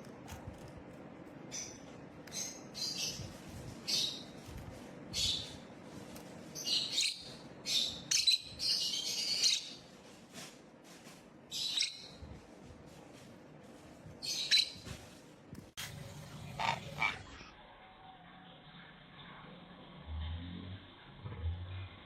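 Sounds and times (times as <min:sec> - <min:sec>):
parrot chirping: 0:05.1 - 0:05.6, 0:06.6 - 0:09.8, 0:11.5 - 0:12.2, 0:14.2 - 0:14.9, 0:16.4 - 0:17.3.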